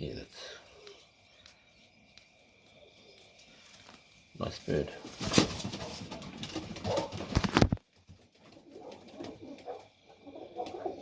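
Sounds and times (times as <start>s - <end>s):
pigeons cooing: 8.4s - 11.0s.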